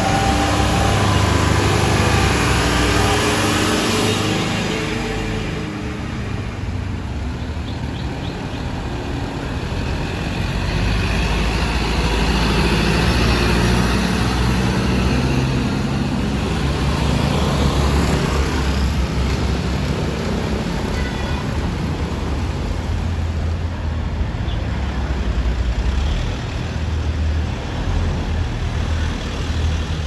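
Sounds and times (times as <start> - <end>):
fire engine driving past: 0.0 - 30.0.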